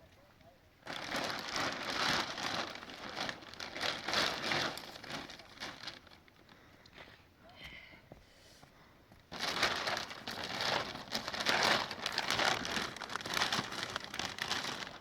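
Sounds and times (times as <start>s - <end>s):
plastic sheeting crinkling: 0.8s - 6.7s, 9.3s - 15.0s.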